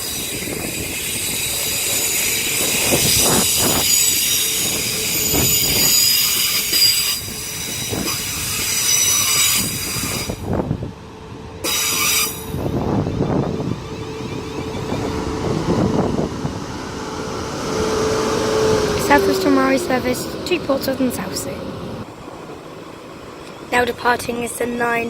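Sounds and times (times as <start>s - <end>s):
train wheels and brakes squealing: 0.0s - 10.6s, 11.6s - 16.3s.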